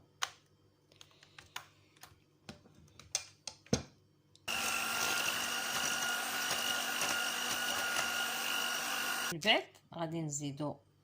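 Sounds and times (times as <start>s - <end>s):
electric mixer whining hum: 4.5s - 9.3s.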